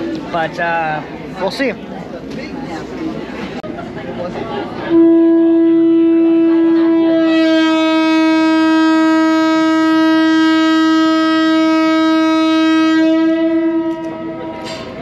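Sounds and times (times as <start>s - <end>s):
boat horn blast: 4.8s - 15.0s.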